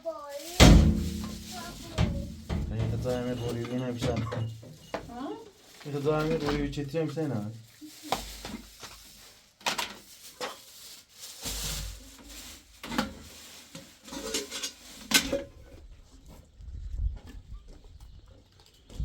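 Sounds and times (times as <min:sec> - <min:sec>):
pots and metal utensils clattering: 0:00.4 - 0:06.8, 0:09.7 - 0:15.8.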